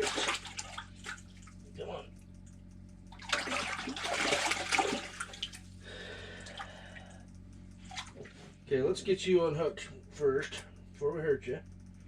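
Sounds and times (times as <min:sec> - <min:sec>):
fish splashing in water: 0:00.0 - 0:01.6, 0:03.2 - 0:05.7.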